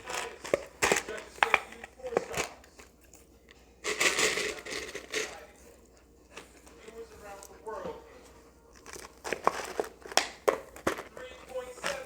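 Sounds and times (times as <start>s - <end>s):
crinkling and crunching: 8.7s - 12.0s.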